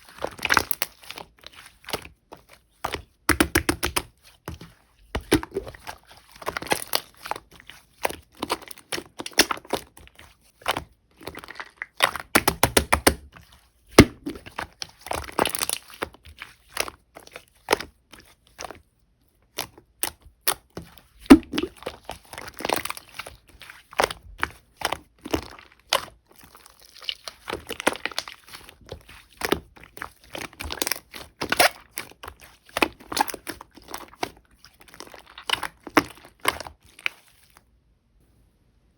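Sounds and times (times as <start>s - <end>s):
slime squishing with crackles: 0.0s - 37.8s.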